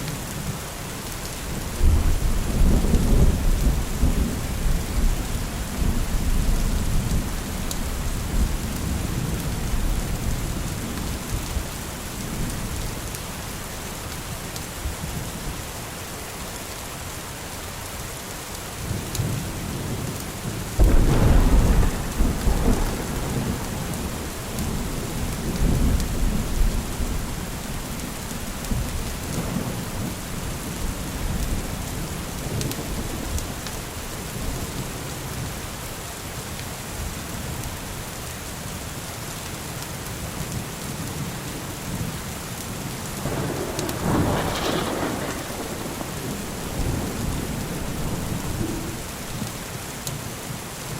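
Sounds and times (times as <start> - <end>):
steady rain: 0.0 - 50.9
thunder rumbling: 19.8 - 35.0, 43.2 - 49.7.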